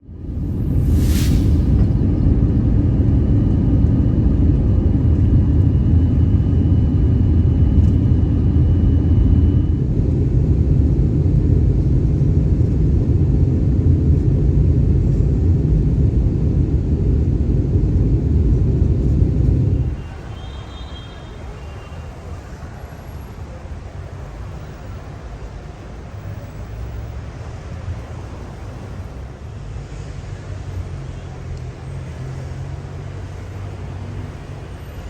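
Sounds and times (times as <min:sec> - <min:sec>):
faint high whine: 0:00.0 - 0:14.2
jet engines rumbling: 0:00.0 - 0:20.5.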